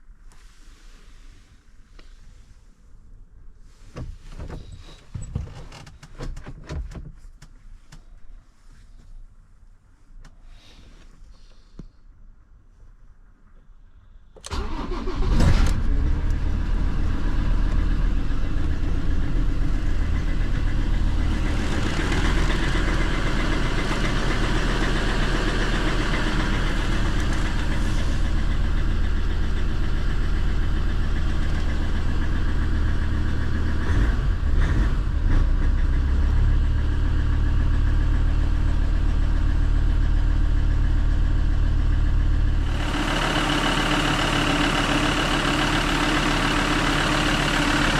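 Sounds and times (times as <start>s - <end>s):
diesel engine starting and idling: 14.3s - 47.9s.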